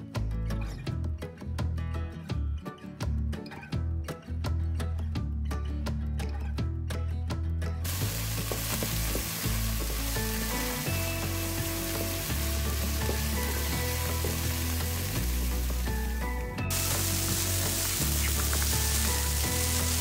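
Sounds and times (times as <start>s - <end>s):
chicken and onion sizzling in oil: 7.8s - 20.0s.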